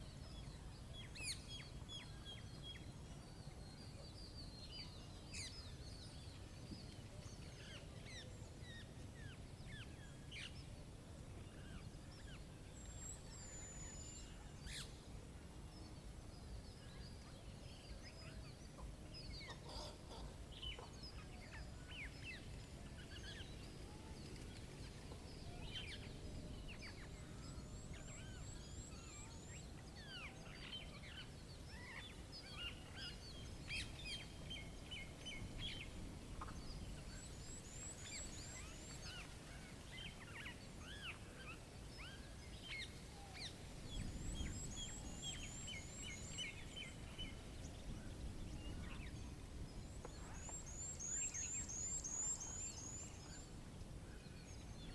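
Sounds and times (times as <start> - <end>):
songbirds chirping and whistling: 11.4 - 15.1, 15.8 - 54.9.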